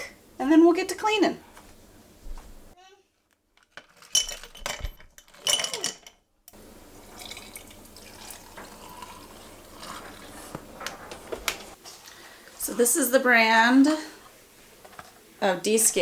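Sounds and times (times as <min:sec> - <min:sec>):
ice cubes clinking into glass: 0:03.8 - 0:06.2
liquid pouring: 0:06.8 - 0:10.5.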